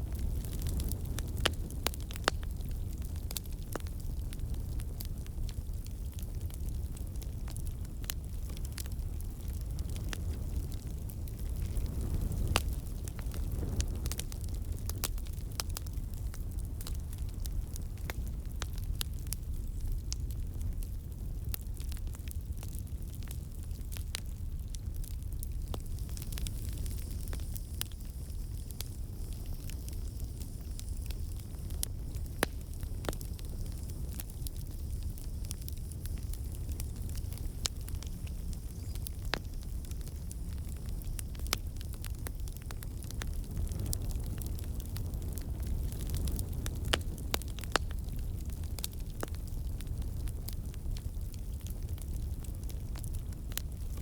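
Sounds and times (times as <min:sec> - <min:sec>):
campfire crackling and popping: 0:00.0 - 0:54.0
low rumble of flames: 0:00.0 - 0:54.0.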